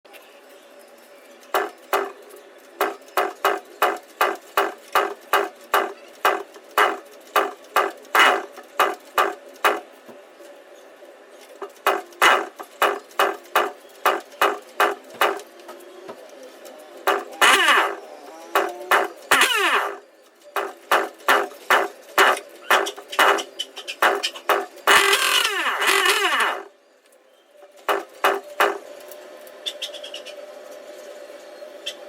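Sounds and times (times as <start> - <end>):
motorcycle engine kick-start clacks: 17.0 - 26.7.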